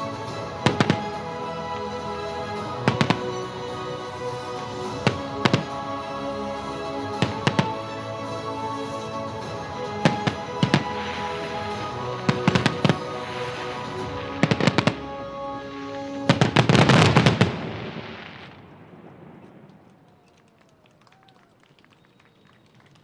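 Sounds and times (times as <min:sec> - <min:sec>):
fireworks bangs and crackling: 0:00.0 - 0:01.3, 0:02.2 - 0:07.9, 0:08.8 - 0:20.6
music: 0:00.0 - 0:17.9.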